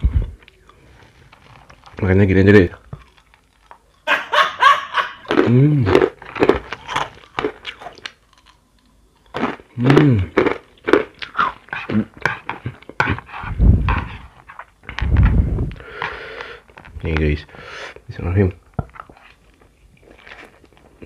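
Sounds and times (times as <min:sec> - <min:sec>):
crunchy chewing: 0:00.3 - 0:04.1, 0:05.1 - 0:15.1, 0:18.8 - 0:21.0.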